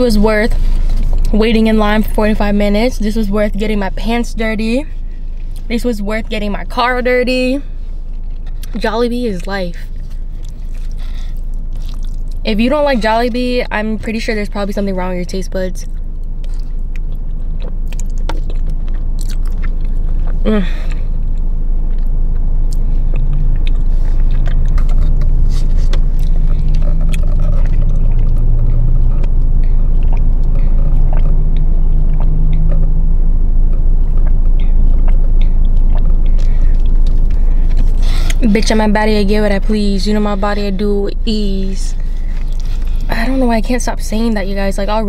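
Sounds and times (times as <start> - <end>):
low rumble inside a car: 0.0 - 45.0
chewing noodles: 9.4 - 12.4, 15.8 - 33.0, 33.7 - 39.2, 42.0 - 43.1
short hum: 15.8 - 43.3.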